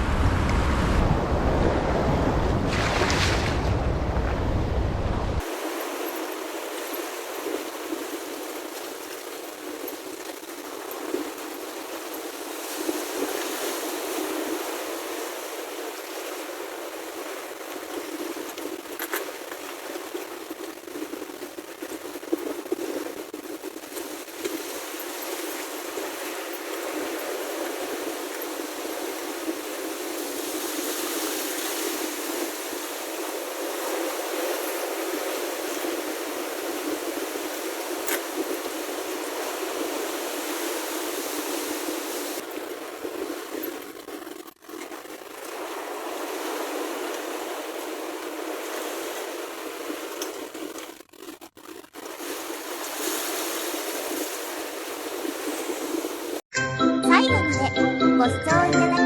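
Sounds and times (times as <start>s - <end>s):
sea water splashing around rocks: 0.0s - 56.5s.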